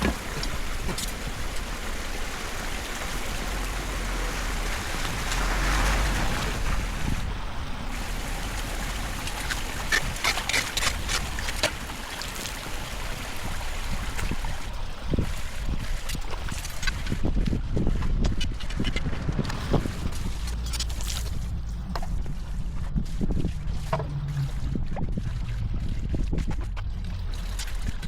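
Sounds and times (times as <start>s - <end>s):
water gurgling into drain: 0.0s - 15.9s, 23.3s - 28.0s.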